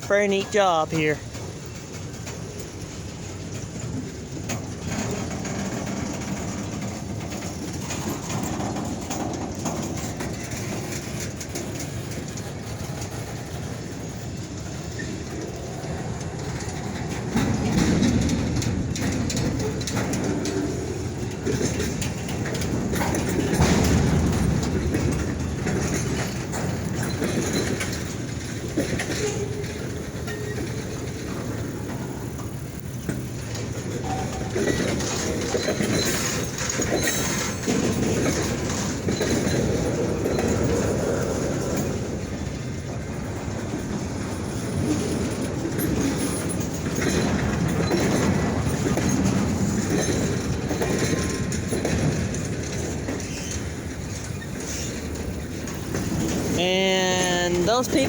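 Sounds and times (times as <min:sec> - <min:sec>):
freight train rumbling: 0:00.0 - 0:58.0
wheels clacking over rail joints: 0:00.0 - 0:58.0
train wheel squeal: 0:02.5 - 0:56.6.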